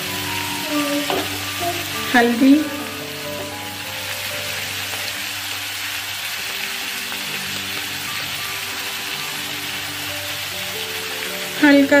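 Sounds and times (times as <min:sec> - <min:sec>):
food frying in oil sizzling: 0:00.0 - 0:12.0.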